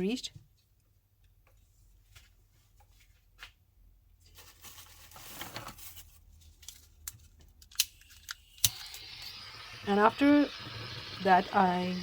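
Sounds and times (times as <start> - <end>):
crinkling rustling of handling: 1.4 - 7.6.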